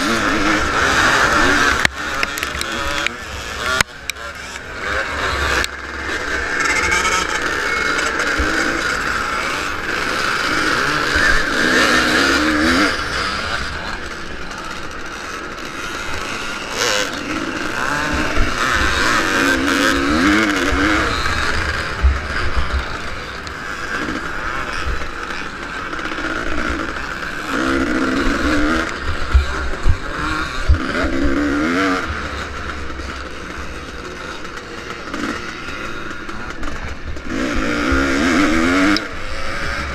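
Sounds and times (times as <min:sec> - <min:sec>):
motorcycle engine revving: 0:00.0 - 0:39.9
rushing noise: 0:03.2 - 0:13.8.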